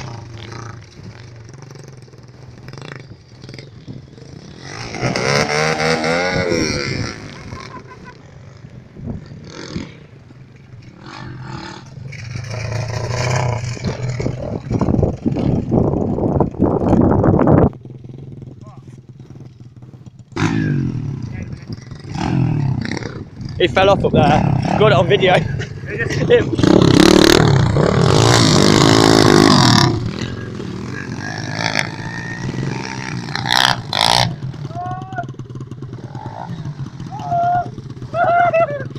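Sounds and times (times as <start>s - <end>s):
distant motorbike engine running: 0.0s - 38.9s.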